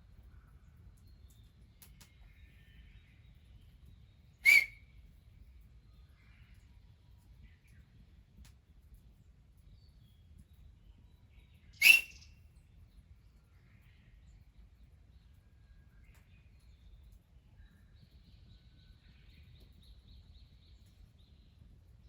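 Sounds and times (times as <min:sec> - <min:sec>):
faint bird chirps: 0:00.3 - 0:04.9, 0:10.9 - 0:12.7.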